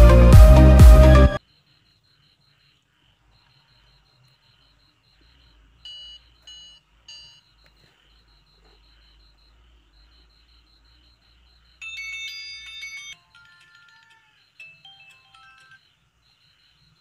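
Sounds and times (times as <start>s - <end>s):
electronic music: 0.0s - 1.4s.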